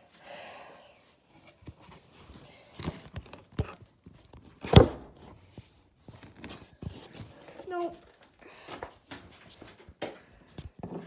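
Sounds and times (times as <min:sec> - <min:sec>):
knocks and thuds: 0:04.7 - 0:05.2.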